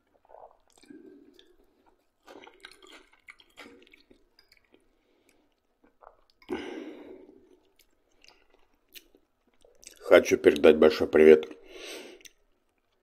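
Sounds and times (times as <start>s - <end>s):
close chewing with wet clicks: 0.1s - 6.5s, 7.5s - 10.1s.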